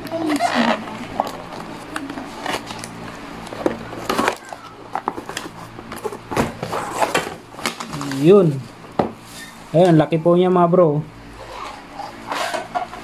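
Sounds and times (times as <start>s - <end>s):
cardboard and bubble wrap rustling: 0.0s - 9.8s.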